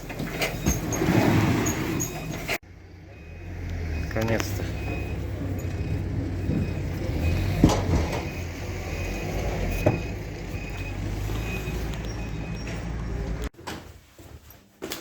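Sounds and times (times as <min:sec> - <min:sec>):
reversing beeper: 0:01.6 - 0:13.2
diesel engine low hum: 0:02.0 - 0:13.5.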